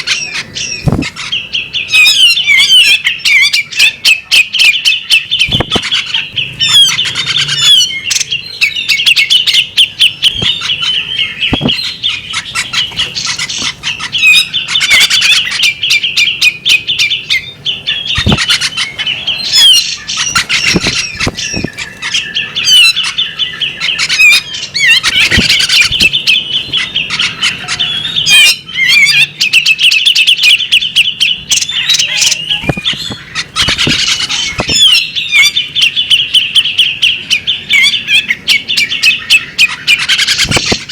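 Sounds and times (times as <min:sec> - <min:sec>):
magpie robin singing: 0:00.0 - 0:40.9
sharp bird clicks: 0:05.4 - 0:06.2, 0:10.2 - 0:13.8, 0:18.1 - 0:18.8, 0:19.7 - 0:23.0, 0:40.2 - 0:40.9.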